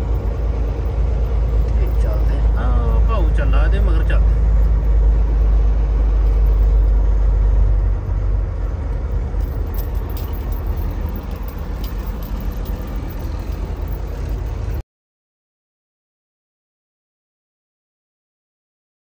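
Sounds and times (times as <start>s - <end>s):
diesel truck engine rumble: 0.0s - 14.8s.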